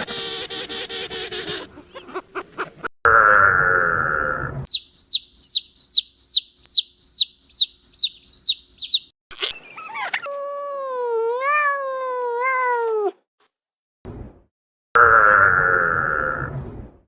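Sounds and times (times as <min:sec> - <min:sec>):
farm animal call: 0:03.1 - 0:09.0
chick peeping: 0:04.7 - 0:09.1.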